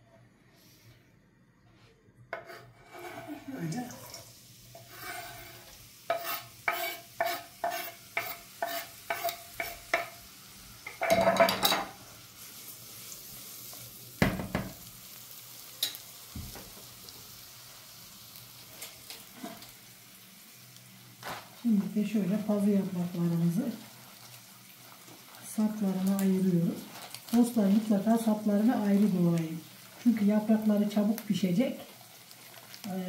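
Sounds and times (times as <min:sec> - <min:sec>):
utensil stirring against pot: 0:02.3 - 0:10.2, 0:23.4 - 0:32.8
leeks sizzling in hot oil: 0:02.8 - 0:33.0
pot clunks: 0:10.9 - 0:11.9, 0:14.2 - 0:14.8.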